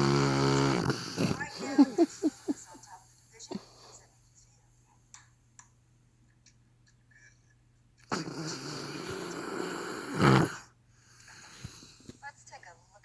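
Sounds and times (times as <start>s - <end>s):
dog snoring: 0.0s - 2.5s, 8.0s - 10.7s.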